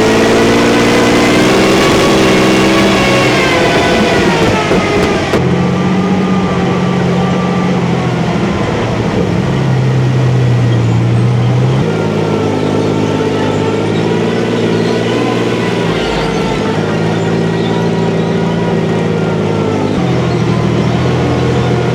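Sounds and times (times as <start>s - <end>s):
tank engine running: 0.0s - 21.9s.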